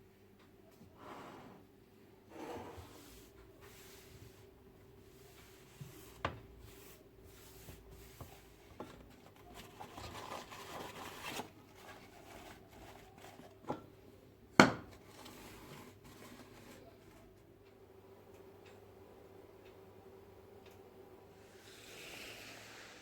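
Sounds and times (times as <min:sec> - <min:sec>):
faint steady hum: 0:00.0 - 0:23.0
rustling scrape: 0:05.2 - 0:13.6, 0:15.0 - 0:17.3.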